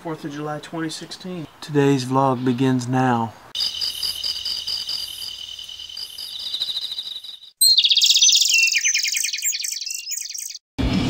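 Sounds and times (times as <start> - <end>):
high pulsing insect trill: 3.6 - 10.5
bird song of rapid trills: 3.6 - 10.6.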